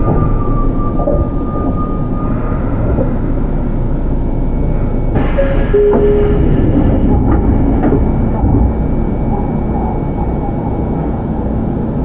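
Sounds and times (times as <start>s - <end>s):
train wheels rumbling on rails: 0.0s - 12.0s
brief steady tones: 5.2s - 7.2s
hiss: 5.2s - 7.2s.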